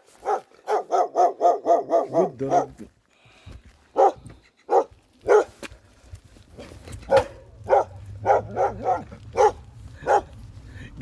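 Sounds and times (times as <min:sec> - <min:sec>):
dog barking angrily: 0:00.2 - 0:02.9, 0:03.9 - 0:05.6, 0:06.6 - 0:10.3.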